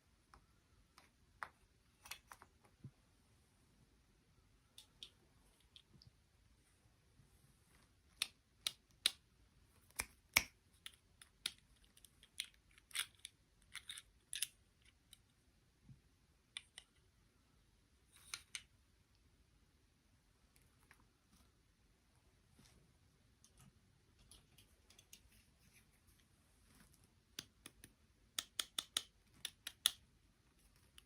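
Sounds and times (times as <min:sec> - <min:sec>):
sharp clicks and snips: 0:27.3 - 0:30.0.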